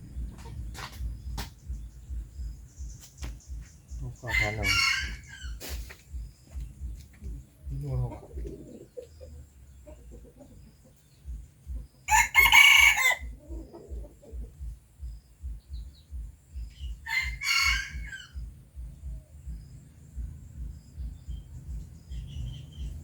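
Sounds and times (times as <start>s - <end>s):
soft low thudding: 0.0s - 4.1s
bird harsh calls: 0.0s - 23.0s.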